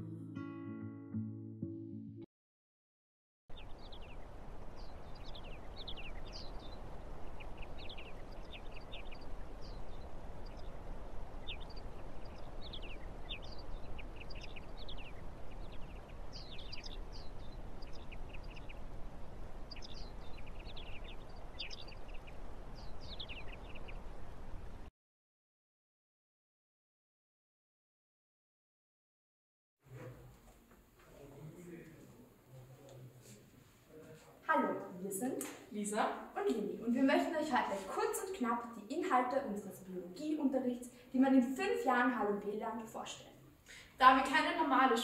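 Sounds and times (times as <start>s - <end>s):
small birds chirping: 3.5s - 24.9s, 34.6s - 45.0s.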